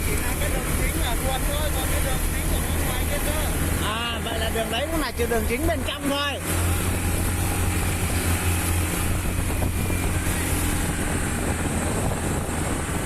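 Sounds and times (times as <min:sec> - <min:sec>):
wind noise on microphone: 0:06.4 - 0:13.0.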